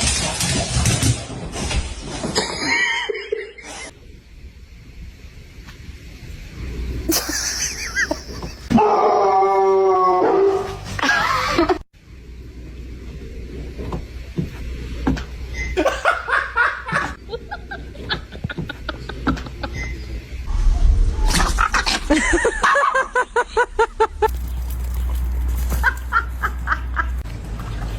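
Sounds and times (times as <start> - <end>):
people laughing: 7.1 - 8.7, 15.8 - 20.0, 21.5 - 24.4, 25.7 - 27.2.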